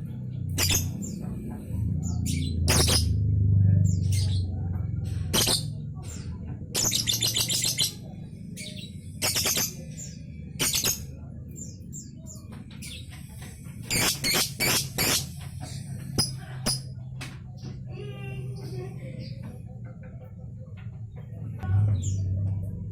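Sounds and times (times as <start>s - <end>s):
lovebird chirping: 2.0s - 3.2s, 8.6s - 11.1s, 13.9s - 16.9s.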